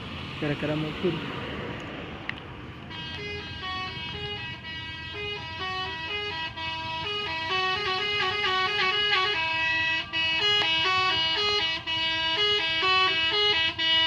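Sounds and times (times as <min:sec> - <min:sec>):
musical air horns: 0:02.9 - 0:14.0.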